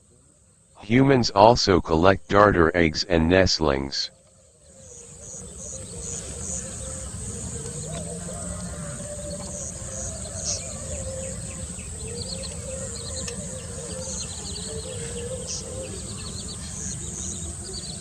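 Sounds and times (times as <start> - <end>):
insects droning: 3.7 - 18.0.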